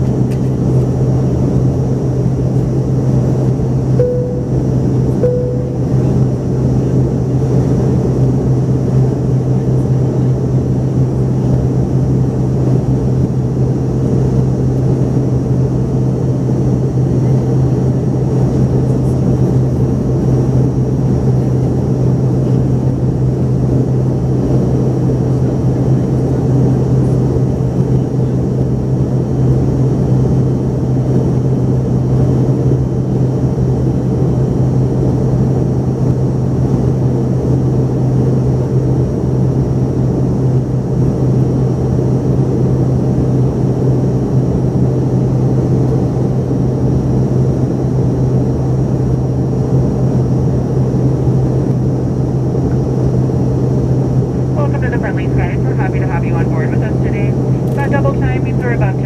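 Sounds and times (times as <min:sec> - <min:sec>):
jet engine cabin drone: 0:00.0 - 0:59.0
faint high whine: 0:04.0 - 0:07.0.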